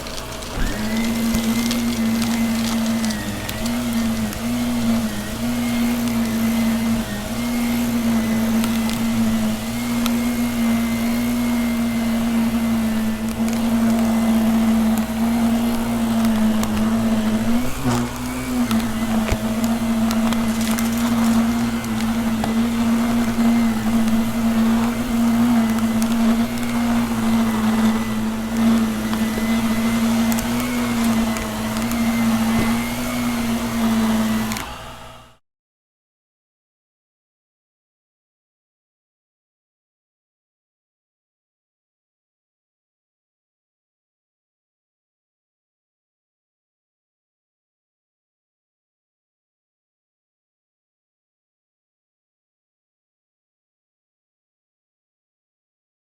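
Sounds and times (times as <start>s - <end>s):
debris crackling in vacuum: 0.0s - 34.8s
vacuum cleaner running: 0.0s - 35.4s.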